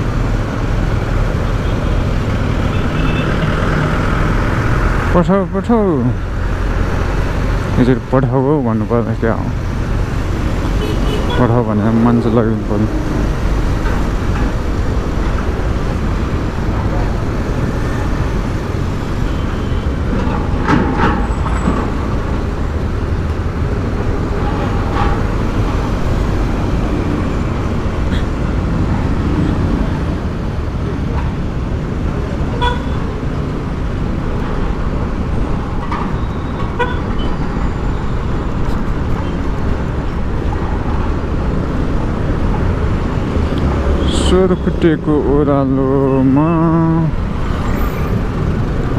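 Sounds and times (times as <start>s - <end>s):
vehicle horn toots: 10.8s - 11.5s, 32.6s - 33.0s.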